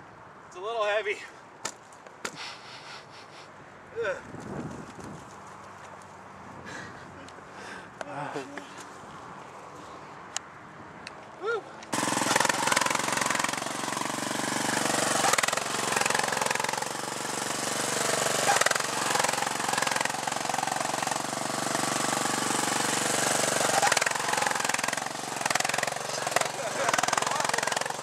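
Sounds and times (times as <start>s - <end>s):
lawn tractor engine running: 11.9s - 28.0s.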